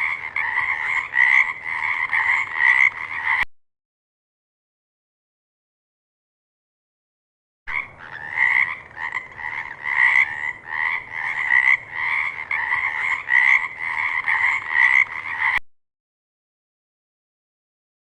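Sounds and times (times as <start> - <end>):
frog croaking: 0.0 - 3.4, 7.7 - 15.6.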